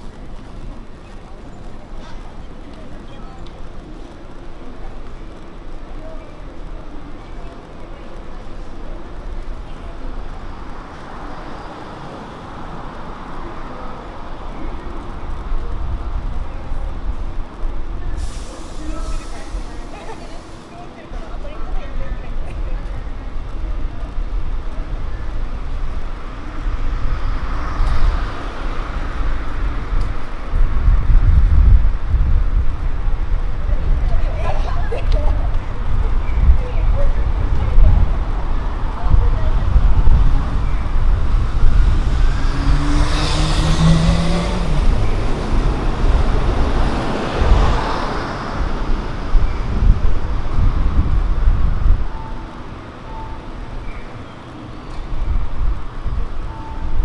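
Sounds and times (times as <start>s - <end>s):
steady low traffic rumble: 0.0s - 57.0s
vehicles driving past: 0.0s - 57.0s
car passing: 37.2s - 52.0s.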